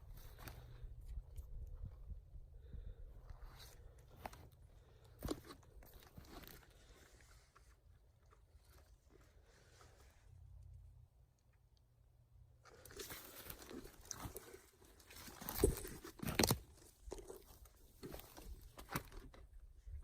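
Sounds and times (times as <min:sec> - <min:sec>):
twigs and leaves crunching: 0:03.3 - 0:09.7, 0:12.6 - 0:19.6
twigs snapping: 0:12.7 - 0:19.3.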